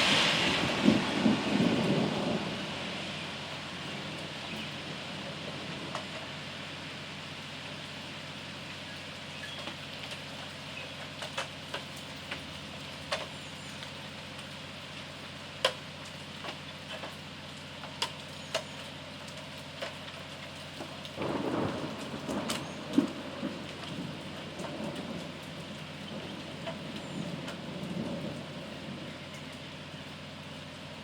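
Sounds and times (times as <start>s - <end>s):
thunder rumbling: 0.0s - 6.6s, 20.8s - 30.2s
steady rain: 0.0s - 31.0s.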